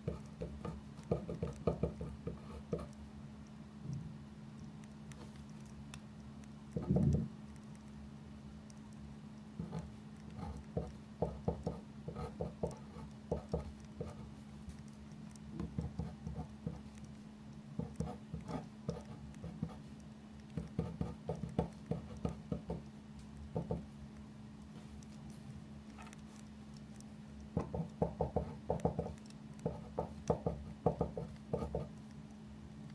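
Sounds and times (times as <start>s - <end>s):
pen writing on paper: 0.0s - 2.9s, 9.6s - 14.3s, 15.6s - 16.9s, 17.8s - 19.8s, 20.6s - 22.8s, 27.6s - 31.9s.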